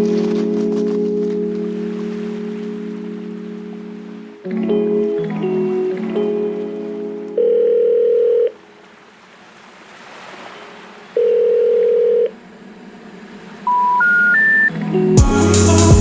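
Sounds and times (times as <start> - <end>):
telephone ringback tone: 7.4 - 8.6, 11.2 - 12.3, 13.7 - 14.7
short rising telephone tones: 11.2 - 12.3, 13.7 - 14.7.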